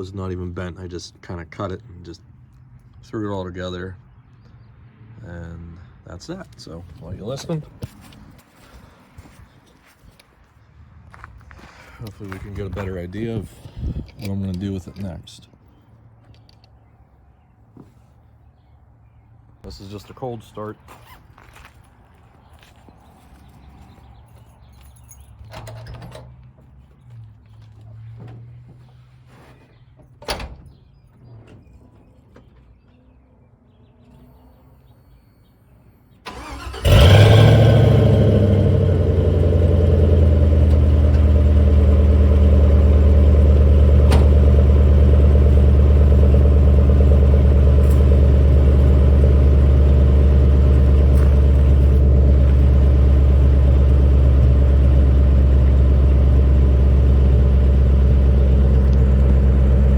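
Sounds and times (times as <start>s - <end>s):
truck engine starting and idling: 36.2s - 59.9s.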